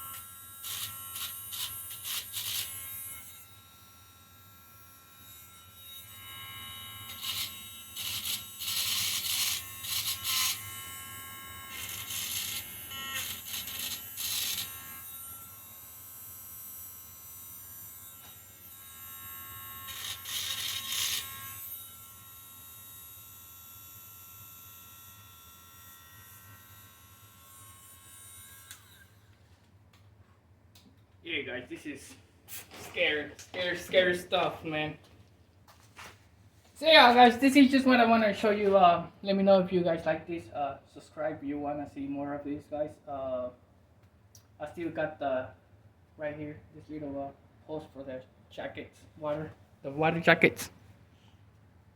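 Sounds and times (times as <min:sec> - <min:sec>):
rotary tool whining: 0:11.7 - 0:15.1, 0:19.8 - 0:21.7.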